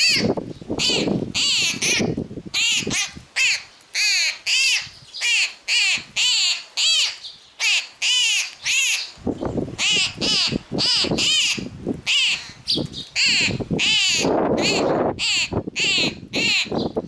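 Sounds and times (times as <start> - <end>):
young bird begging calls: 0.0 - 9.2, 9.8 - 17.0.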